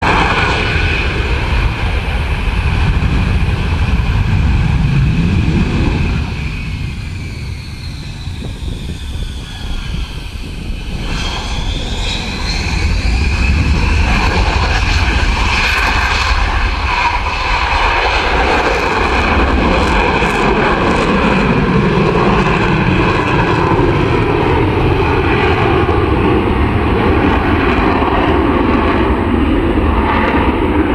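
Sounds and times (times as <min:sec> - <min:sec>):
fighter jet flying: 0:00.0 - 0:30.9.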